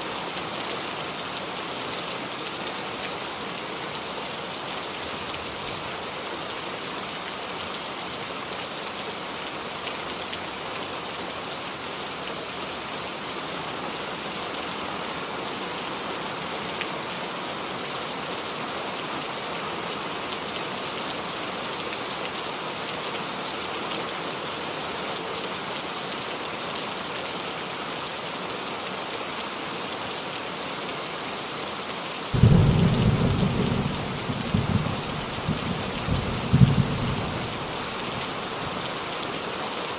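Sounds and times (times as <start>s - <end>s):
rain falling on a roof: 0.0s - 39.9s
deep rumble of thunder: 32.4s - 37.6s.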